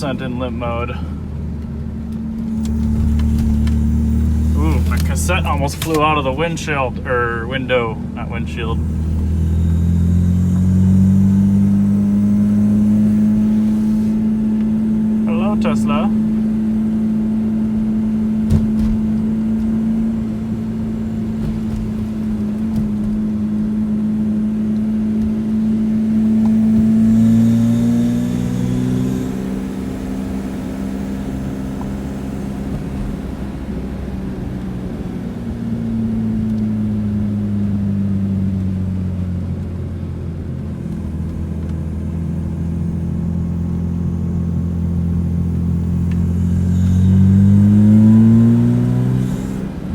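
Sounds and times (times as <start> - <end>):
car engine running: 0.0 - 49.9.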